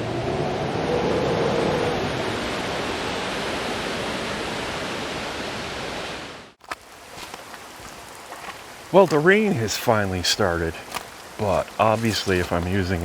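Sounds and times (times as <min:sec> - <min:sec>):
wind rushing through treetops: 0:00.0 - 0:13.0.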